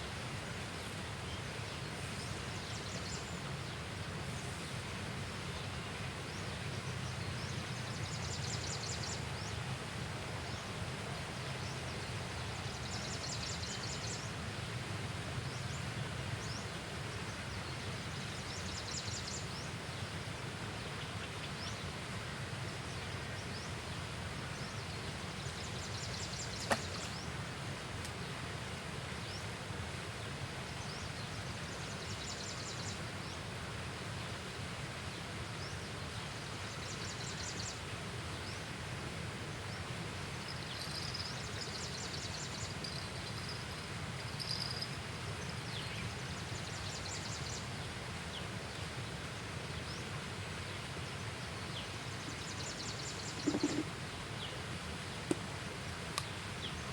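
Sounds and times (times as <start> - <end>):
outdoor ambience: 22.0 - 31.7, 47.7 - 56.9.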